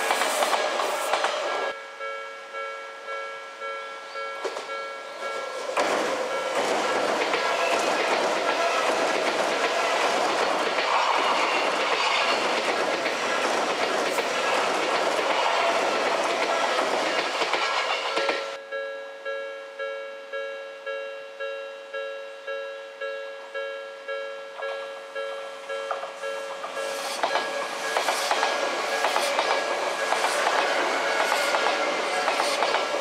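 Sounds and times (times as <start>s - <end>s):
train rumble and wheel clatter: 0.0s - 1.8s, 4.4s - 18.6s, 25.9s - 33.0s
level crossing bell ringing: 1.5s - 5.7s, 6.3s - 6.6s, 18.2s - 27.0s.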